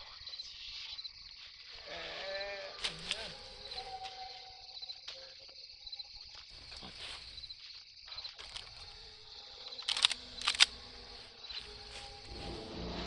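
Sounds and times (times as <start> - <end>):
high insect-like hiss: 0.0 - 13.0
sharp loud clicks: 9.8 - 11.0.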